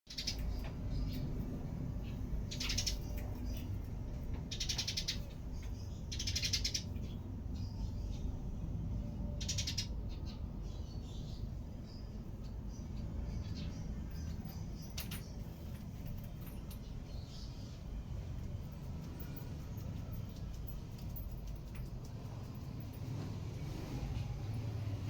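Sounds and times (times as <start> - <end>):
small bird raspy calls: 2.0 - 3.6, 4.5 - 7.8, 9.4 - 11.1.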